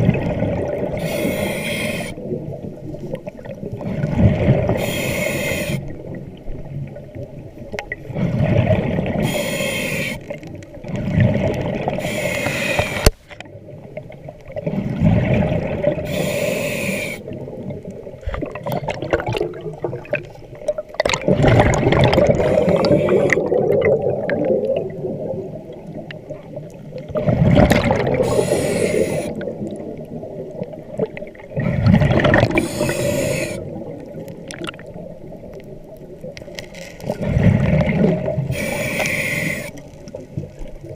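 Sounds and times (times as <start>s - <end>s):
exhaled bubbles rumbling: 0.0s - 1.3s, 2.1s - 4.9s, 5.8s - 9.4s, 10.3s - 12.2s, 13.4s - 16.2s, 17.2s - 40.9s
hissing regulator inhalation: 1.0s - 2.2s, 4.8s - 5.9s, 9.2s - 10.3s, 12.0s - 13.1s, 16.0s - 17.2s, 22.3s - 23.6s, 28.2s - 29.5s, 32.4s - 33.7s, 38.5s - 39.8s.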